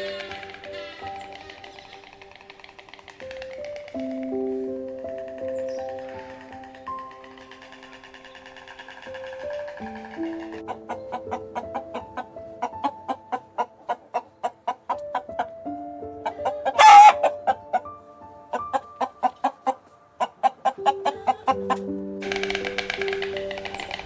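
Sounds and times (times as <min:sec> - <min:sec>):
chicken squawk: 0:00.0 - 0:03.3, 0:16.2 - 0:17.8, 0:18.5 - 0:24.0
chicken clucking: 0:00.0 - 0:04.3, 0:05.2 - 0:15.6, 0:16.2 - 0:17.9, 0:18.5 - 0:24.0
background music: 0:00.0 - 0:24.0.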